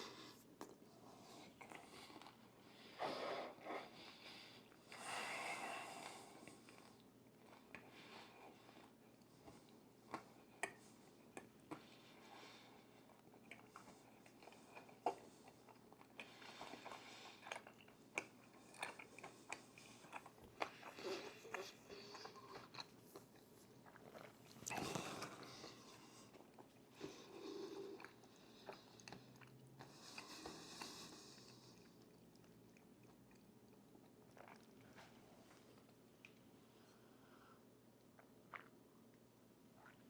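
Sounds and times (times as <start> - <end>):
person chewing crunchy food: 13.0 - 27.1, 27.8 - 35.2.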